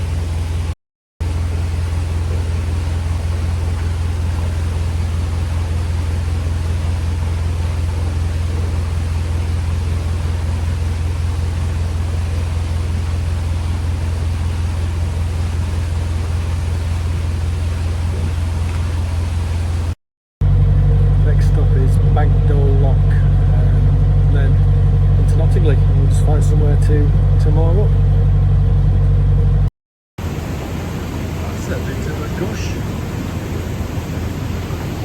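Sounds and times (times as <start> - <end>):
rush of water and air: 0.0 - 20.0, 30.2 - 35.0
boat engine humming: 0.0 - 35.0.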